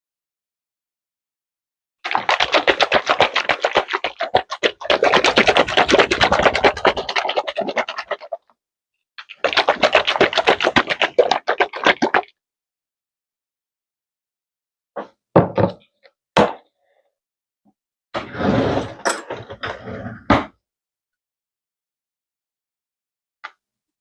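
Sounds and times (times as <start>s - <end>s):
container being shaken: 2.0s - 8.4s, 9.2s - 12.3s.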